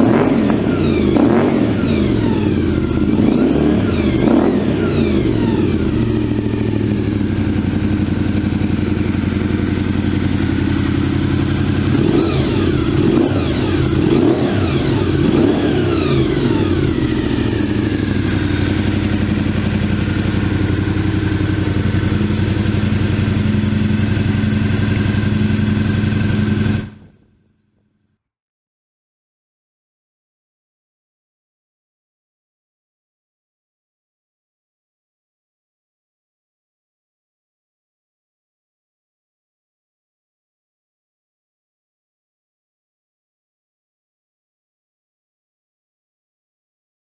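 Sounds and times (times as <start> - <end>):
motorcycle engine idling and revving: 0.0 - 28.2.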